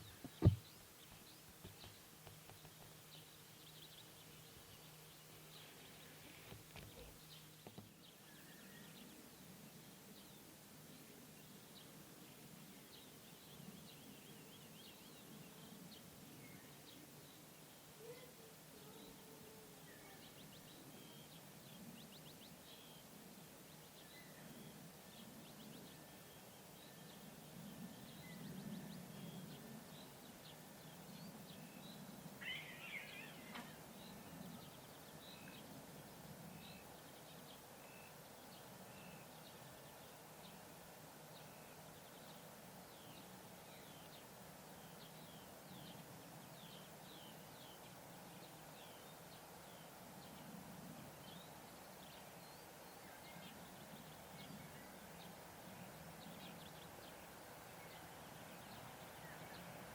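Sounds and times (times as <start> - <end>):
birds chirping: 0.0 - 9.2
faint low hum: 0.0 - 59.9.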